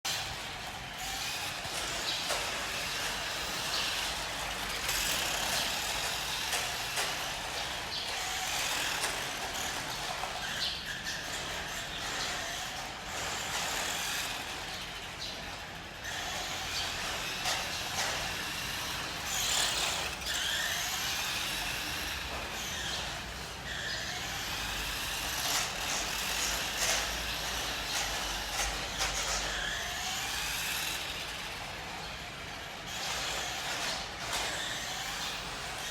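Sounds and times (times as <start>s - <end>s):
electric motor whining: 0.1s - 35.9s.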